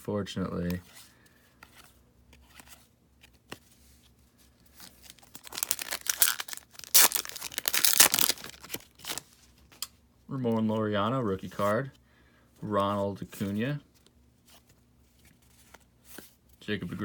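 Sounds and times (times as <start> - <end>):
card pack wrapper tearing and crinkling: 4.8 - 9.4.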